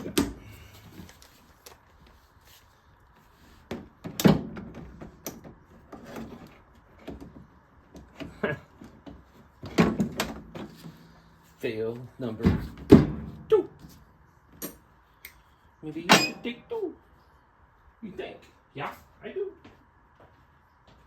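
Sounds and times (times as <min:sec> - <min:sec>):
hand tools knocking and clanking: 0:16.1 - 0:16.4.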